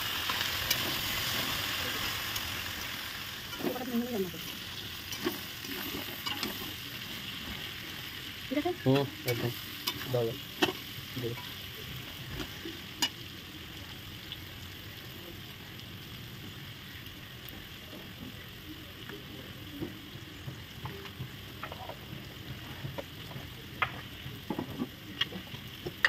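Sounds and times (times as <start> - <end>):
food sizzling in oil: 0.0 - 26.0
spatula stirring in wok: 3.3 - 8.0.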